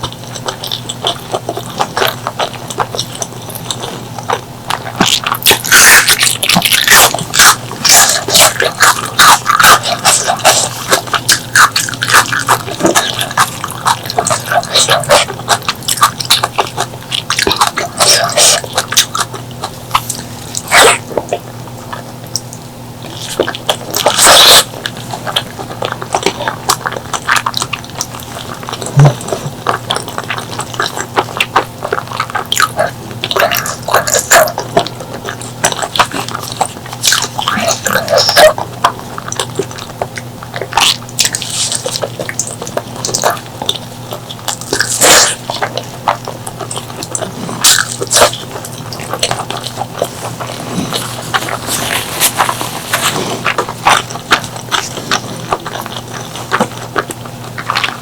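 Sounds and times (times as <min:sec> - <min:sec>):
wet chewing and lip-smacking: 0:00.0 - 0:58.0
noisy mouth sound bursts: 0:49.8 - 0:55.6.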